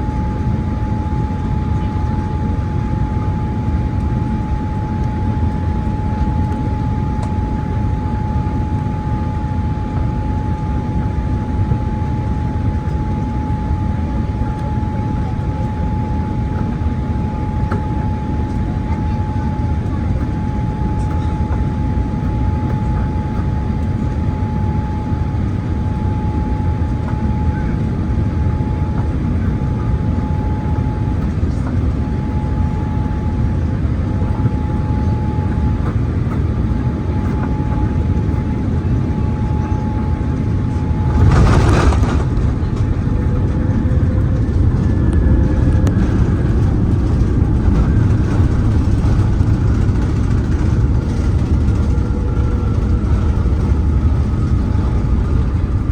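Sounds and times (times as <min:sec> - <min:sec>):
airliner cabin air and engine noise: 0:00.0 - 0:55.9
wheels touching down rumble: 0:41.0 - 0:55.3.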